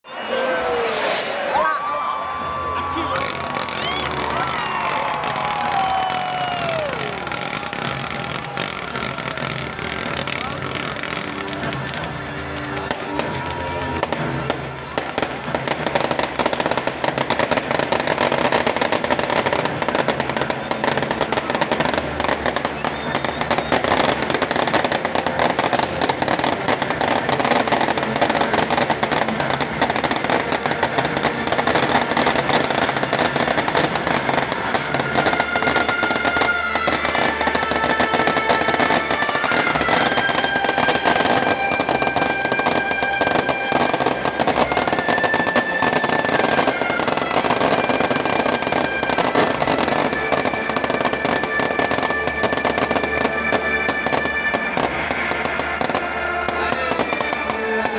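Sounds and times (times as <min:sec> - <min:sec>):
music playing: 0:00.1 - 0:57.9
bonfire crackling: 0:02.1 - 0:57.9.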